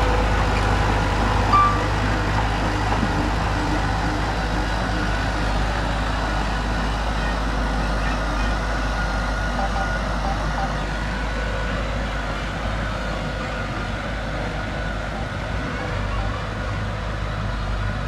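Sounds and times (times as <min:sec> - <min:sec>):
diesel machinery rumble and clatter: 0:00.0 - 0:18.0
short high beep: 0:01.5 - 0:02.0, 0:09.6 - 0:10.9.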